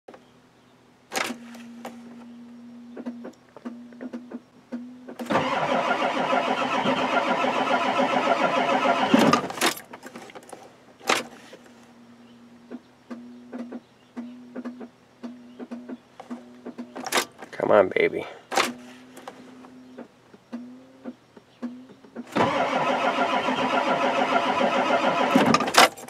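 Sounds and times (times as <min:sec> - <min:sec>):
diesel engine starter cranking: 0:05.2 - 0:10.0, 0:22.2 - 0:26.0.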